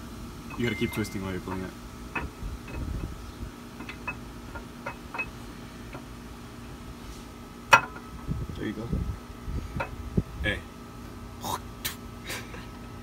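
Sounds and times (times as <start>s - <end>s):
low handling rumble: 0.0s - 11.2s
light metallic clicks and knocks: 0.5s - 3.1s, 3.8s - 6.1s.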